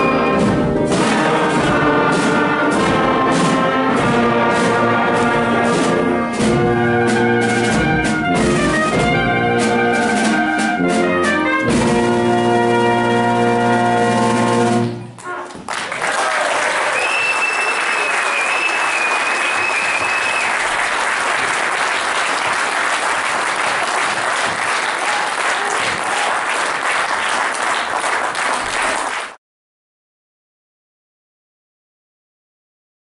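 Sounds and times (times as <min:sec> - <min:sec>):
wind band holding a chord: 0:00.0 - 0:14.9
audience applauding: 0:15.2 - 0:29.4.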